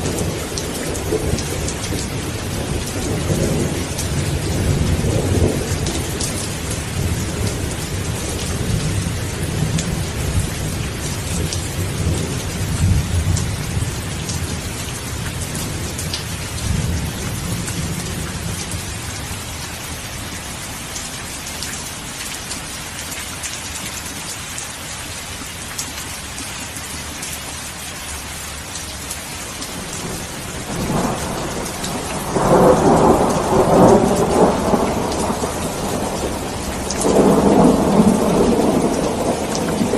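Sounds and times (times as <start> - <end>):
steady rain: 0.0 - 39.9
thunder rolling: 29.8 - 39.9.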